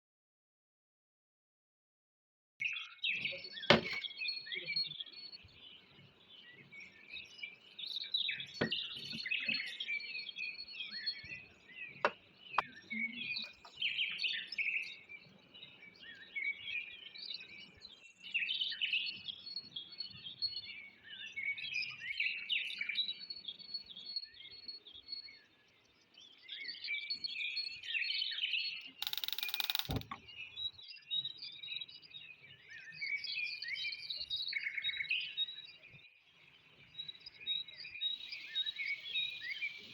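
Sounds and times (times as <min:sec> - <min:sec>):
small birds chirping: 0:02.6 - 0:39.9
sharp knocks: 0:03.7 - 0:04.0, 0:29.0 - 0:30.2.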